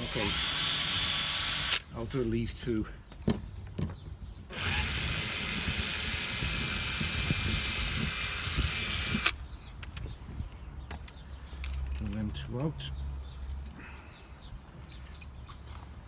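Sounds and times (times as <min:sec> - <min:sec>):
power drill running: 0:00.0 - 0:01.8, 0:04.5 - 0:09.4.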